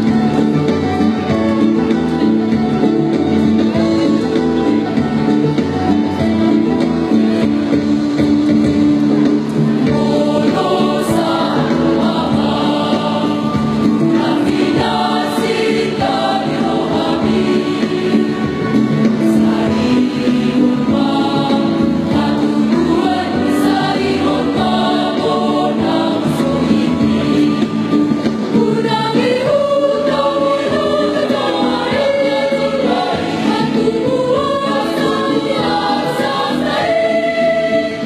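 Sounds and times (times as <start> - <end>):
choir singing in harmony: 0.0 - 38.0.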